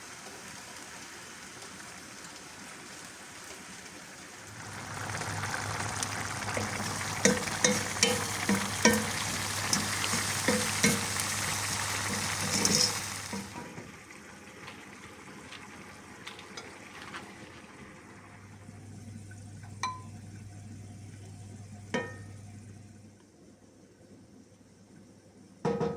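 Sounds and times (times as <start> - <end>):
food sizzling in hot oil: 0.0 - 22.7
utensil scraping a pan: 6.6 - 13.6.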